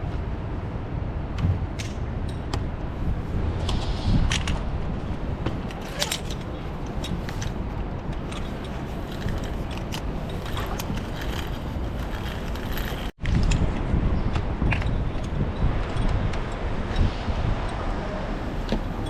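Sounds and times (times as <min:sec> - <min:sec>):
wind buffeting microphone: 0:00.0 - 0:19.0
sharp clicks and rattles: 0:05.7 - 0:13.6.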